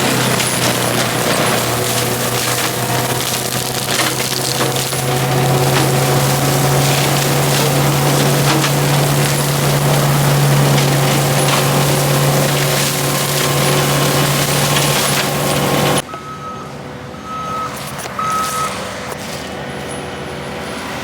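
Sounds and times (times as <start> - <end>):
brush mulcher grinding: 0.0 - 16.1, 17.7 - 21.0
reversing alarm beeping: 15.3 - 18.8.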